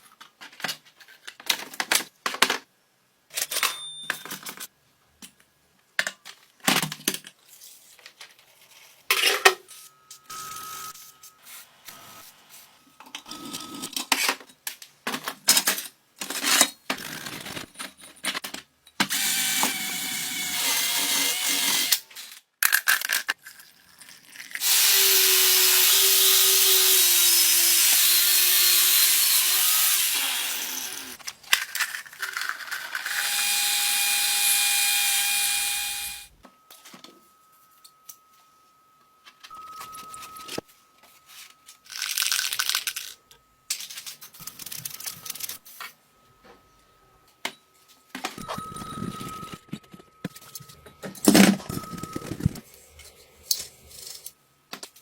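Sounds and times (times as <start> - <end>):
power tool running: 19.1 - 22.0, 24.6 - 31.2, 33.0 - 36.3.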